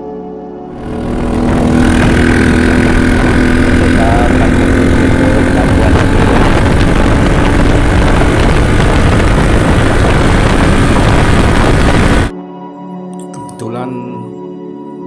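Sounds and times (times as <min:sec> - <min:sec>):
motorcycle engine running: 0:00.7 - 0:12.3
wind buffeting microphone: 0:00.8 - 0:12.3.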